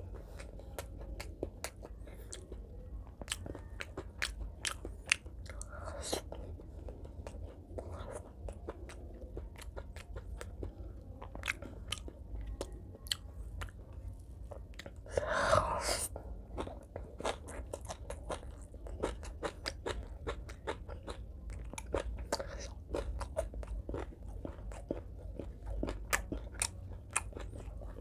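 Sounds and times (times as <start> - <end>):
wet chewing with crunches: 0.0 - 15.4, 16.1 - 28.0.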